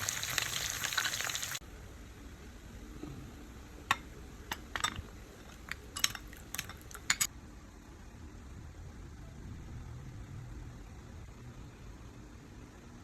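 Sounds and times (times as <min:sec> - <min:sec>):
utensils clinking on dishware: 0:03.9 - 0:07.3.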